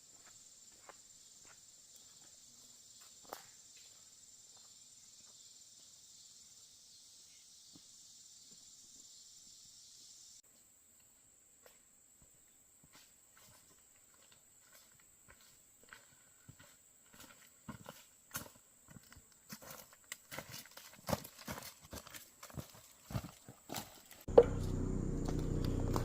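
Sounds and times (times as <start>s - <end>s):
insects droning: 0.0s - 26.0s
footsteps on rock and dry ground: 12.8s - 26.0s.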